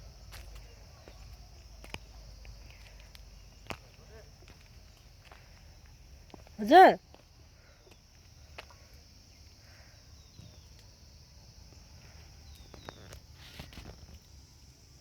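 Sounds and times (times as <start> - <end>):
high insect drone: 0.0 - 15.0.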